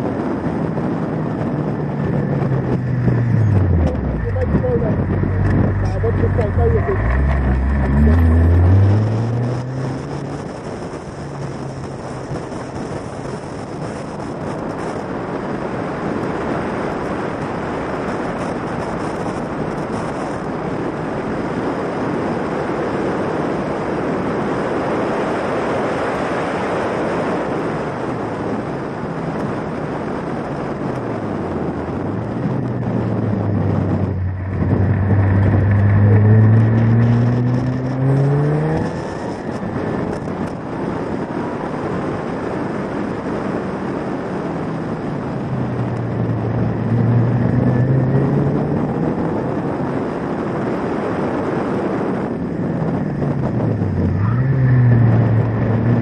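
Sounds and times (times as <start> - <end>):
heavy wind rush: 0.0 - 56.0
car engine accelerating: 0.2 - 15.5, 30.9 - 42.3, 43.0 - 50.5, 51.9 - 56.0.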